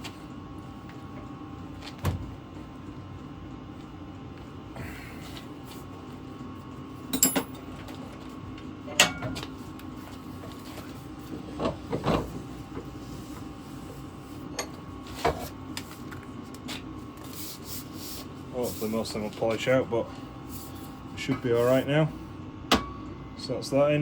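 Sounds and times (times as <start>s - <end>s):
steady low hum: 0.0s - 24.0s
metal tools knocking and clinking: 7.1s - 7.6s.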